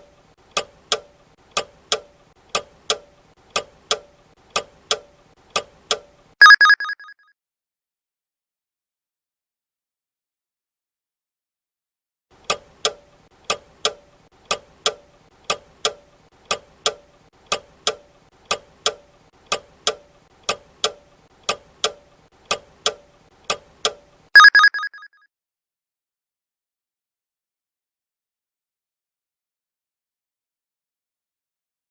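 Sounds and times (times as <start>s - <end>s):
clock ticking: 12.5s - 25.0s.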